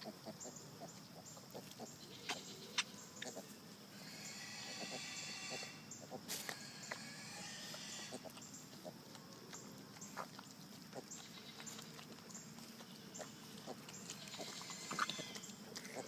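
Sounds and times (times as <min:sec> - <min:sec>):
animal call: 0:00.0 - 0:08.8, 0:12.9 - 0:16.0
animals chewing and crunching: 0:00.0 - 0:16.0.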